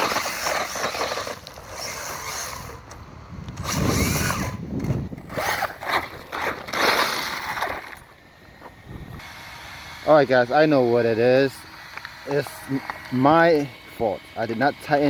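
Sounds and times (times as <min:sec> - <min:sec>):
electric rc car motor and tyres: 0:00.0 - 0:15.0.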